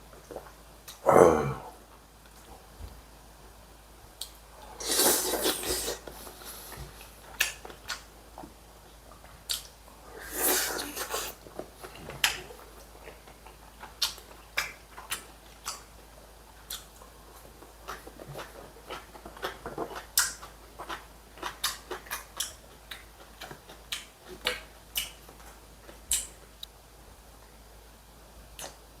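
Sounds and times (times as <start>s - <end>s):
person chewing: 4.2s - 8.1s, 9.2s - 26.4s.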